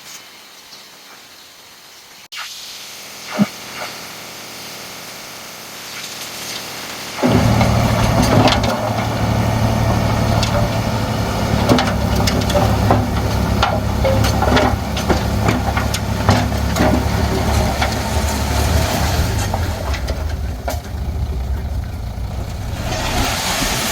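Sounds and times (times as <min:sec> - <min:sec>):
bulldozer diesel engine running: 0:07.2 - 0:23.9
machine knocks and clanks: 0:07.2 - 0:23.9.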